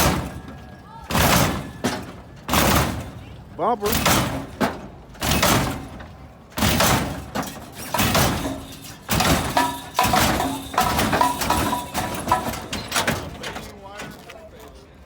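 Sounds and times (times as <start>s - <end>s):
car hydraulics slamming down: 0.0s - 13.7s.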